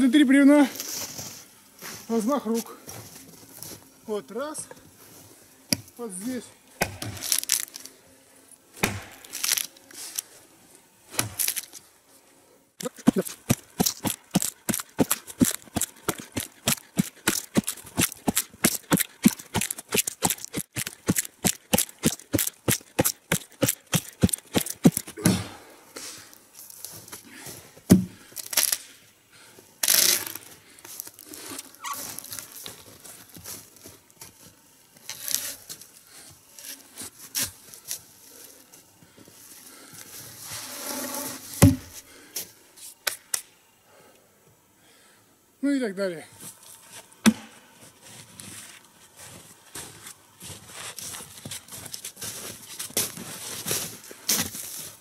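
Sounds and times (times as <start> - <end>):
hand saw cutting wood: 12.9 - 25.1.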